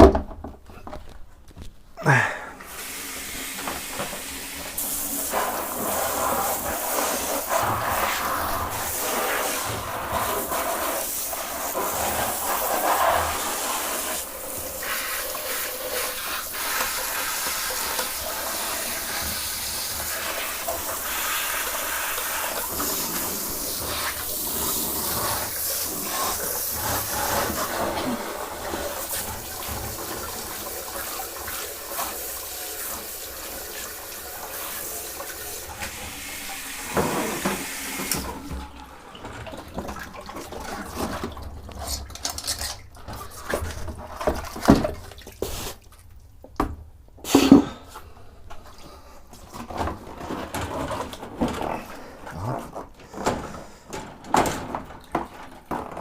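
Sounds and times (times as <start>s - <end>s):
shower hose spraying water: 2.1s - 43.6s.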